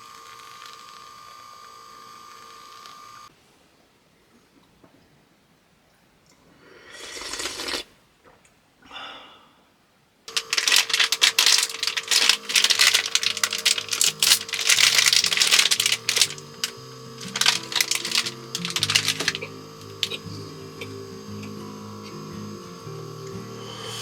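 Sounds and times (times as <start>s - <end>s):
background music with crackling texture: 10.5s - 24.0s.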